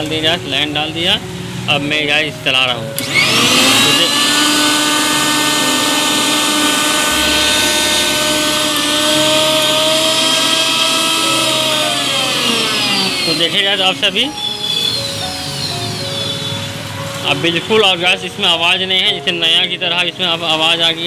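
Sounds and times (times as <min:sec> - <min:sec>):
mixer grinder motor whine: 0:03.0 - 0:17.3.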